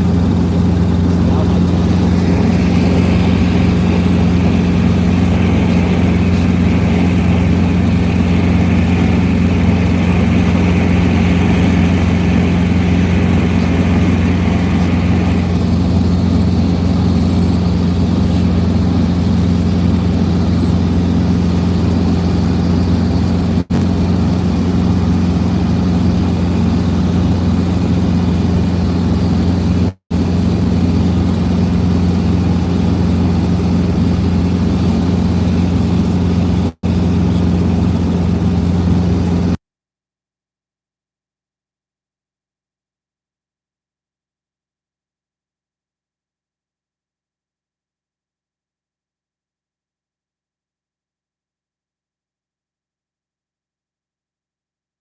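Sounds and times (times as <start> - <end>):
high-pitched whine: 0.0 - 33.1
helicopter rotor drone: 0.0 - 39.6.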